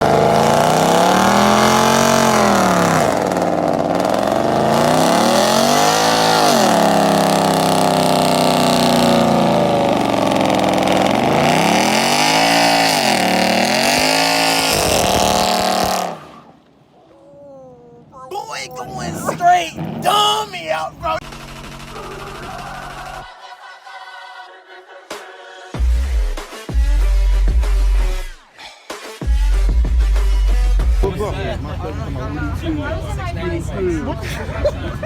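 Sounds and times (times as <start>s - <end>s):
car engine revving: 0.0s - 16.6s, 18.8s - 23.3s.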